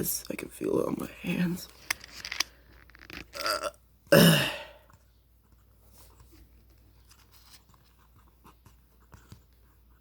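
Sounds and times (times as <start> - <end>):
person clearing throat: 3.4 - 4.8.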